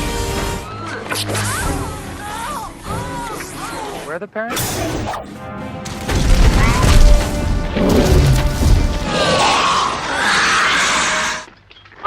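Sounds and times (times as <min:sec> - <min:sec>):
soundtrack music: 0:04.5 - 0:10.1.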